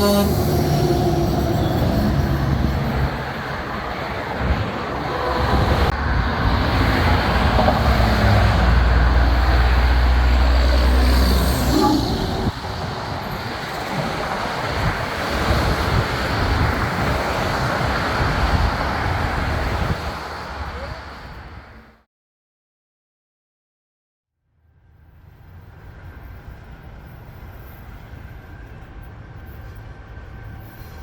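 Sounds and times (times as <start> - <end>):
road traffic noise: 0.0 - 22.0.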